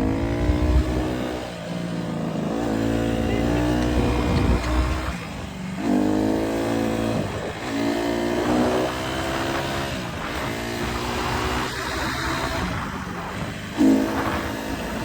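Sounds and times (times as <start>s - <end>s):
dirt bike engine accelerating: 0.0s - 15.0s
wind and riding noise: 0.0s - 15.0s.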